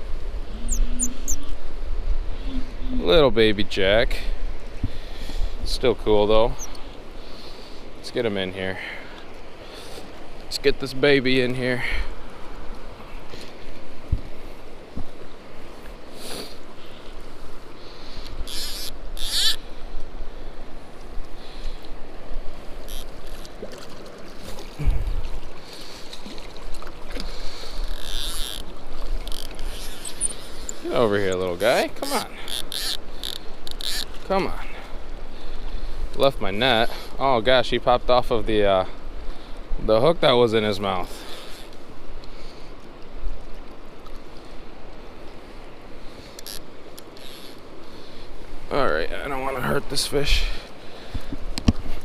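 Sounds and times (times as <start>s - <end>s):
low rumble: 0.0s - 3.4s
wind rumbling on microphone: 0.0s - 6.9s, 12.1s - 15.9s, 24.5s - 31.6s
river water rushing and splashing: 0.0s - 52.0s.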